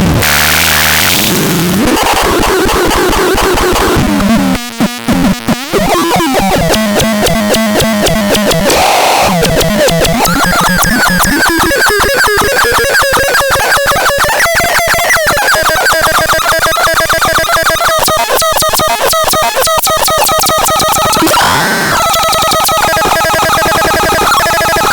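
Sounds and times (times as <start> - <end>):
buzzy electronic tones: 1.7 - 24.9
dense rapid clicking: 1.9 - 21.4.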